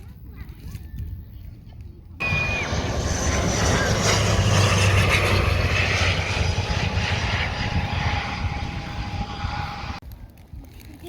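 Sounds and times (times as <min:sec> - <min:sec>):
airplane engine rumble: 0:02.2 - 0:10.5.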